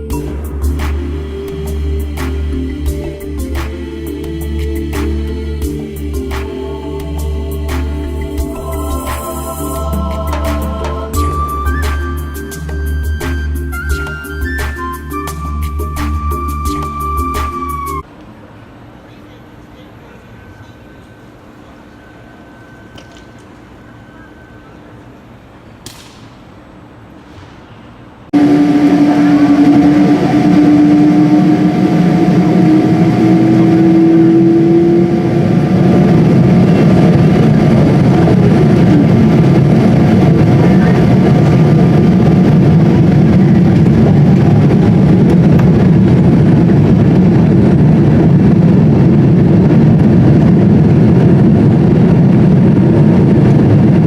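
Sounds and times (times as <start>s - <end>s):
vehicle running loudly: 0.2s - 11.7s, 28.4s - 54.0s.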